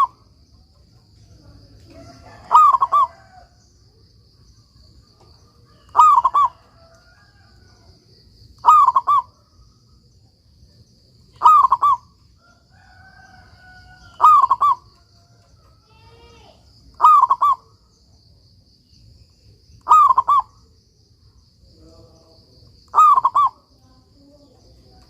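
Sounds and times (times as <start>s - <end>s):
dove cooing: 0.0s - 0.2s, 1.9s - 3.5s, 5.0s - 7.9s, 8.6s - 9.5s, 11.3s - 12.2s, 12.8s - 15.0s, 17.0s - 17.7s, 19.8s - 20.6s, 22.9s - 23.6s.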